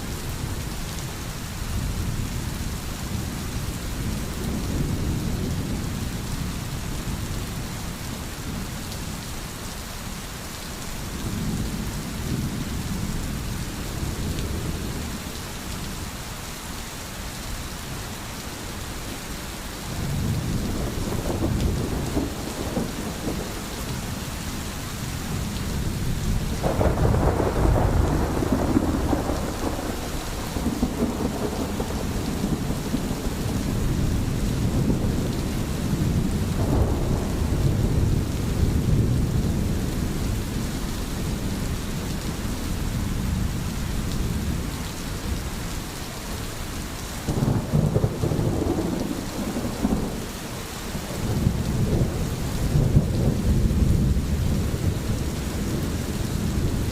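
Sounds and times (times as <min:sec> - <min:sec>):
heavy rain: 0:00.0 - 0:56.9
rolling thunder: 0:20.0 - 0:24.2, 0:25.3 - 0:41.6, 0:47.3 - 0:50.2, 0:51.0 - 0:56.9.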